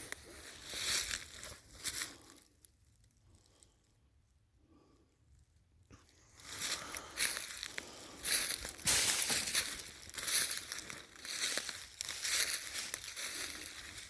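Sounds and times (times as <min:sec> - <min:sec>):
footsteps crunching on frozen ground: 0:00.0 - 0:02.4, 0:06.2 - 0:14.0.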